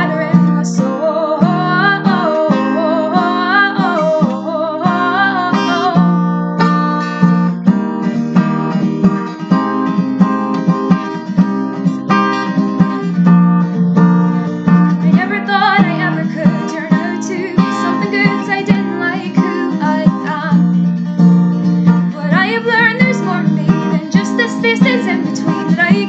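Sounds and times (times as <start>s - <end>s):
person singing: 0.0s - 6.2s, 14.3s - 20.7s, 22.0s - 26.0s
acoustic guitar strumming chords: 0.0s - 26.0s.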